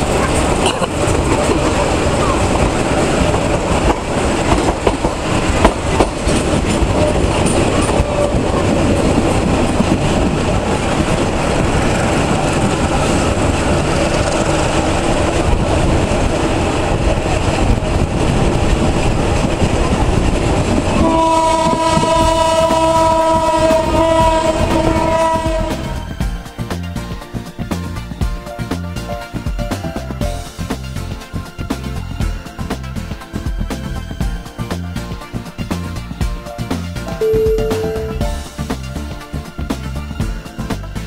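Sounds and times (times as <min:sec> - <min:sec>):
train rumbling on track: 0:00.0 - 0:41.0
locomotive horn blast: 0:21.0 - 0:26.0.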